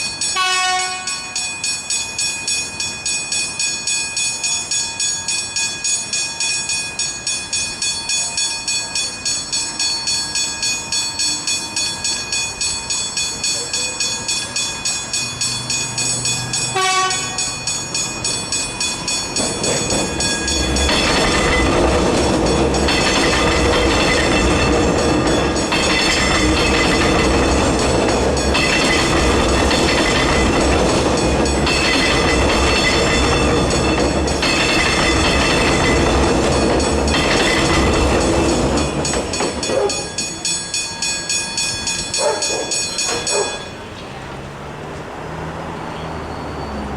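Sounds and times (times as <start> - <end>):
level crossing bells ringing: 0.0 - 44.6
train horn blast: 0.4 - 1.3, 16.7 - 17.5
train rumbling past: 9.5 - 46.9
wheels clattering over rails: 11.8 - 46.9.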